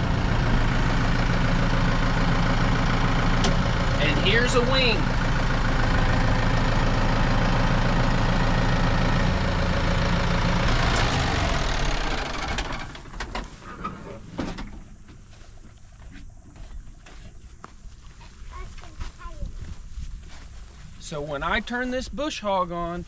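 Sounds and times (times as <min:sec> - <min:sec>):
hydraulics raising: 0:00.0 - 0:16.1
tractor engine running: 0:00.0 - 0:17.2.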